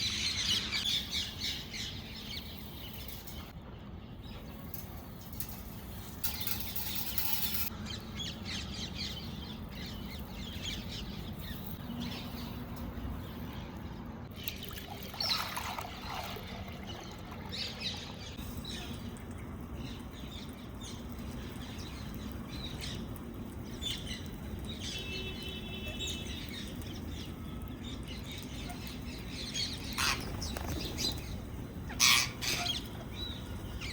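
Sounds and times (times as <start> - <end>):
parrots chirping and squawking: 29.9 - 31.2, 31.9 - 33.0.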